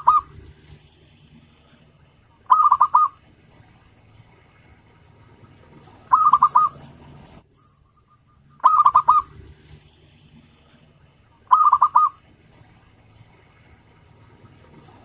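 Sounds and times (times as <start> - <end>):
dove cooing: 0.0 - 0.8, 1.4 - 3.8, 5.3 - 12.8.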